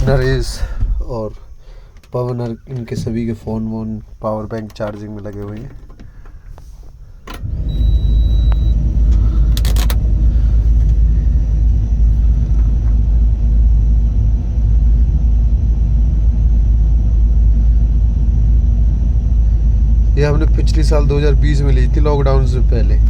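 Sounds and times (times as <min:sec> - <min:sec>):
diesel engine starting and running: 0:00.0 - 0:23.0
high beep: 0:07.7 - 0:08.8.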